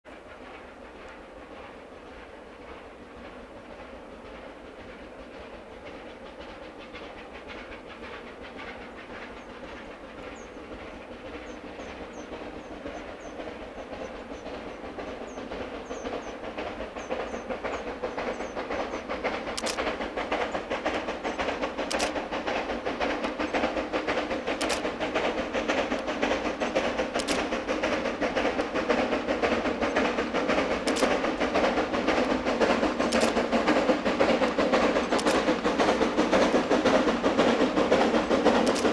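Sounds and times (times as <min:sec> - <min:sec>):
steam locomotive running: 0:00.1 - 0:38.9
sharp clicks: 0:19.3 - 0:38.9.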